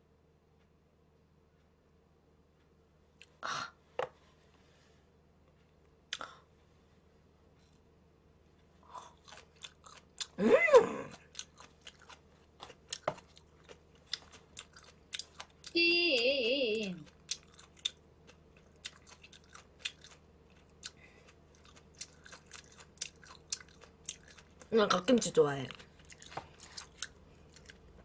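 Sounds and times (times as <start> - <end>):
close chewing with wet crunches: 9.1 - 10.4, 11.1 - 15.8, 17.0 - 28.0.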